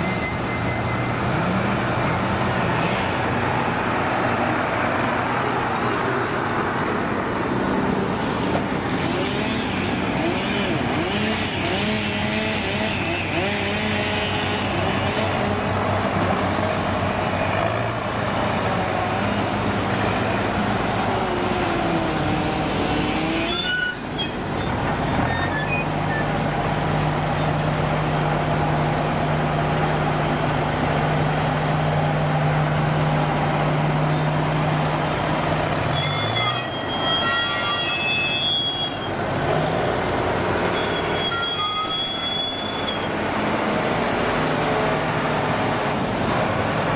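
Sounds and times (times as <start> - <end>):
diesel engine revving: 8.0 - 23.6, 43.0 - 46.9.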